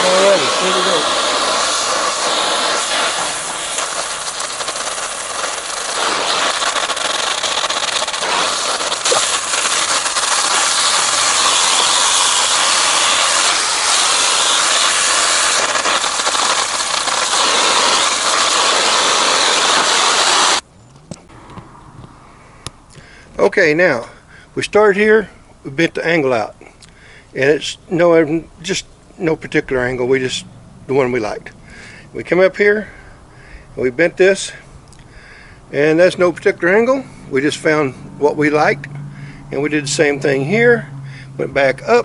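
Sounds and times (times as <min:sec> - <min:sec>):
torch flame hissing: 0:00.0 - 0:20.6.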